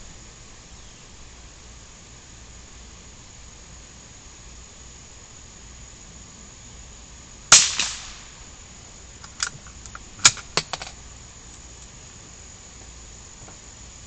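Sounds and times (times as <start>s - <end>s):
gunshot: 7.5s - 8.3s.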